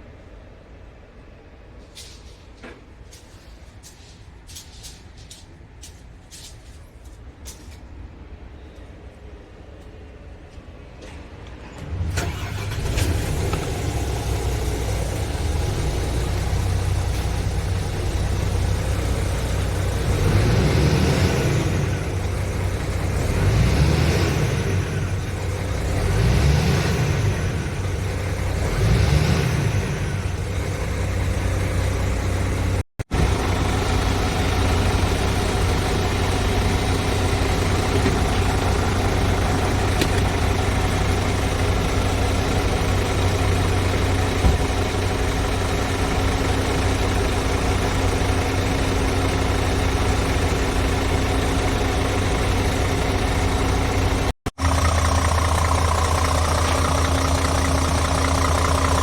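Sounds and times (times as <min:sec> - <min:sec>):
diesel truck engine idling: 0:11.8 - 0:59.0.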